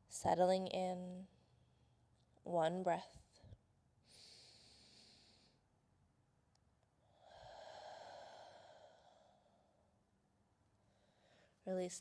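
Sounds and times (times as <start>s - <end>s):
person breathing softly: 4.0s - 5.7s, 7.0s - 9.9s, 10.8s - 11.6s.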